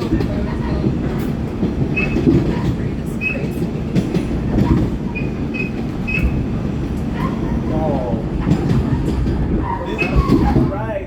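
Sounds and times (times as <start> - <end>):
subway car rumbling: 0.0 - 11.0
wheels clacking over rails: 0.0 - 11.0
high wheel squeals: 4.7 - 6.6, 9.6 - 10.6.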